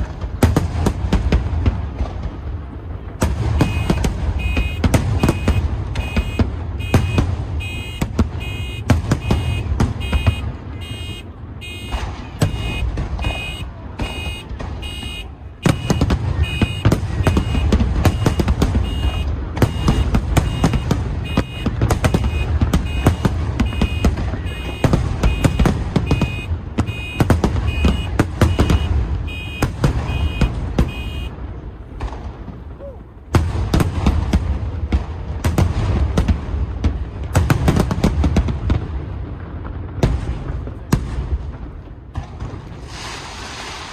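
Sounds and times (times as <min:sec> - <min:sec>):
fireworks bangs: 0:00.0 - 0:43.9
electronic alarm two-tone beeping: 0:03.6 - 0:31.3.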